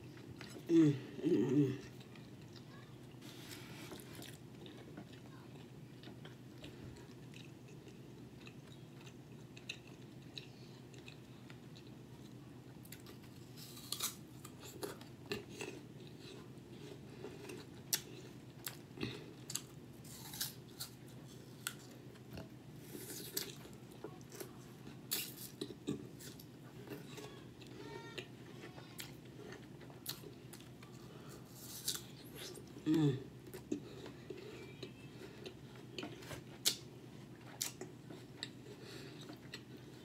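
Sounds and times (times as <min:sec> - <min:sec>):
crunching apple slices: 0:12.9 - 0:16.4, 0:19.5 - 0:21.9.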